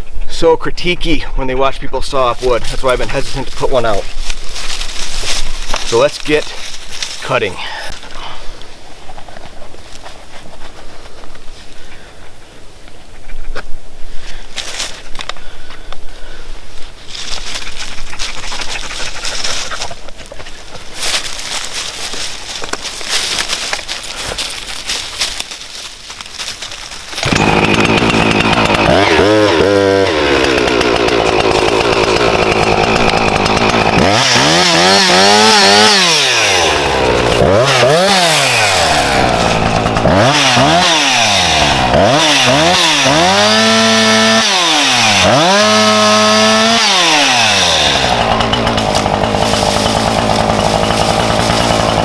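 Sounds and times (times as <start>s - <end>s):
chainsaw revving: 2.2s - 8.2s, 27.1s - 52.0s.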